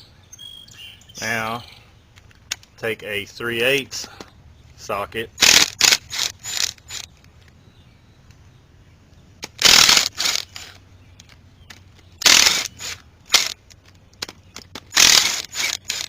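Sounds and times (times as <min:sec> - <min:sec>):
hand ratchet ratcheting: 0:05.4 - 0:07.1, 0:09.4 - 0:10.8, 0:12.2 - 0:13.7, 0:14.6 - 0:16.0.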